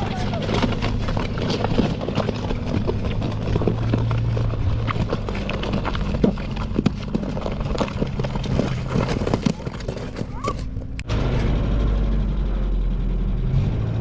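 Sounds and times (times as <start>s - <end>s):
clattering knocks and clicks: 0.0s - 11.1s
engine running steadily: 0.0s - 14.0s.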